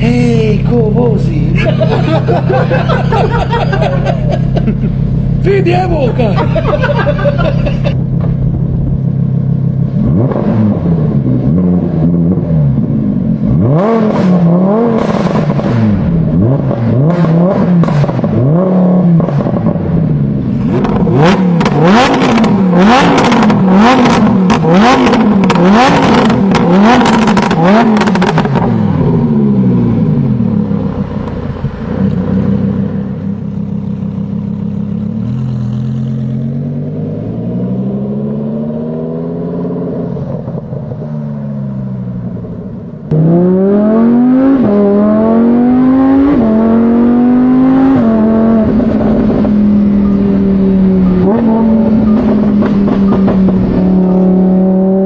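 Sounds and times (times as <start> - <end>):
sports car engine revving: 6.0 - 55.0
exhaust crackles and pops: 20.5 - 28.8.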